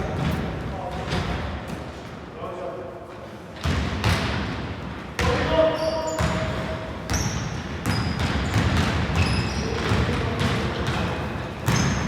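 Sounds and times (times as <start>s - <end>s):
shoe squeaks: 5.6s - 10.1s, 11.6s - 12.0s
basketball bouncing: 7.1s - 12.0s.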